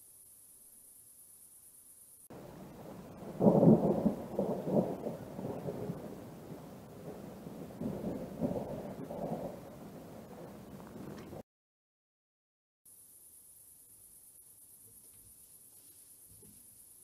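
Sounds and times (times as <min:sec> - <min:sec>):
thunder rumbling: 0:02.3 - 0:11.4.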